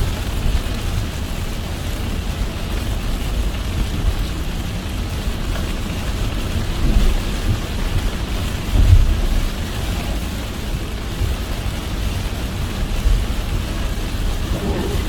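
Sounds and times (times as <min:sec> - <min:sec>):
car tyres rumbling on wet road: 0:00.0 - 0:15.0
heavy rain hissing: 0:04.3 - 0:15.0.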